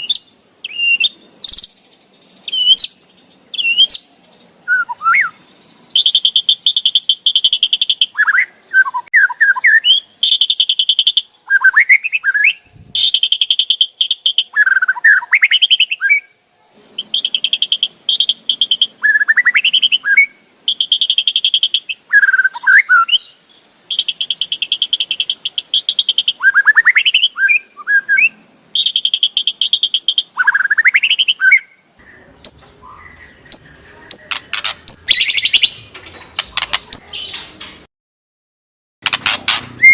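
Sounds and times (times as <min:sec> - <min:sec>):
bird whistled notes: 0:00.0 - 0:01.8, 0:02.4 - 0:04.1, 0:04.7 - 0:16.4, 0:17.0 - 0:23.3, 0:23.9 - 0:31.8, 0:32.4 - 0:35.9
bird rattling chatter: 0:34.1 - 0:37.9, 0:39.0 - 0:39.9.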